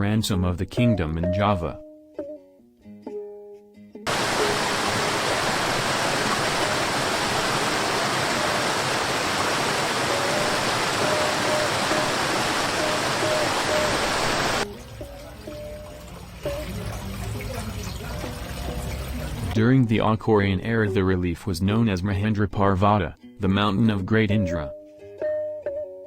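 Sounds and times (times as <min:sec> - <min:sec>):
waterfall rushing water: 0:04.1 - 0:14.6
faint music: 0:14.6 - 0:24.8.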